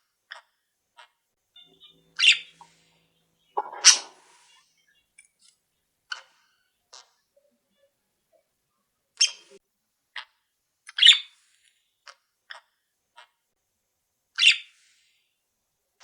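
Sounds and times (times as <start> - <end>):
bird sharp calls: 1.6 - 5.0
faint bird chirps: 1.6 - 8.6, 9.2 - 9.6.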